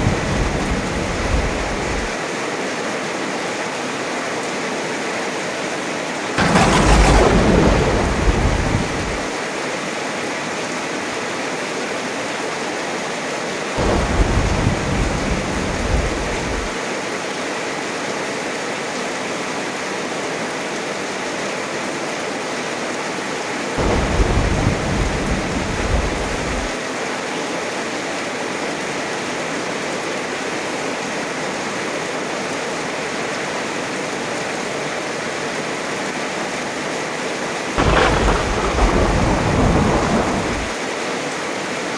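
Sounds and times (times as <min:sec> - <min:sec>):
thunder rumbling: 0:00.0 - 0:02.2, 0:06.4 - 0:09.4, 0:13.8 - 0:16.8, 0:23.8 - 0:26.8, 0:37.8 - 0:40.8
heavy rain: 0:00.0 - 0:04.6, 0:05.4 - 0:17.3, 0:20.5 - 0:41.9.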